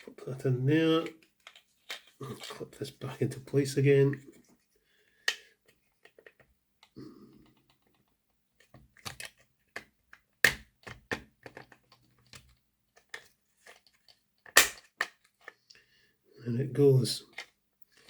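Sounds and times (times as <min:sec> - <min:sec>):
plastic and metal parts clicking: 0:01.0 - 0:02.6, 0:05.3 - 0:15.6.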